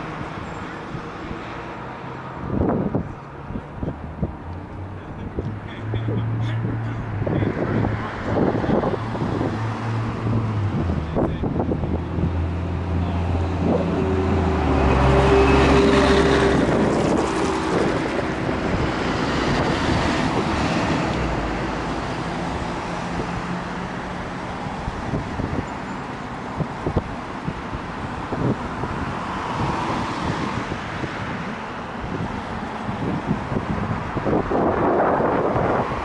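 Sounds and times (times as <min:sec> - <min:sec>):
vehicle engine passing by: 0:03.8 - 0:26.0.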